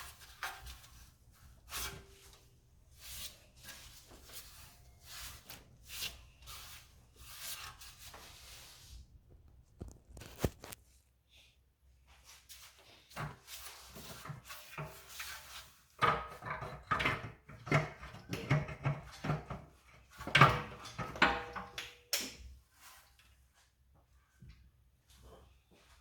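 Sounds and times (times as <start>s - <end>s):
metal clunks and scraping: 13.2s - 21.8s.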